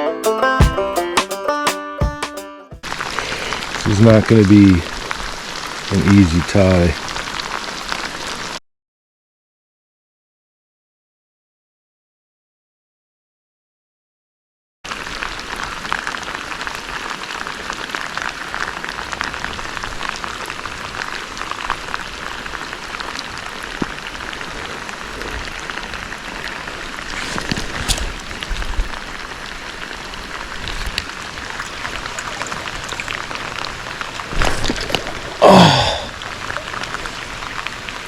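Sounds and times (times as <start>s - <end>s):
heavy rain falling: 2.8s - 8.6s, 14.9s - 38.0s.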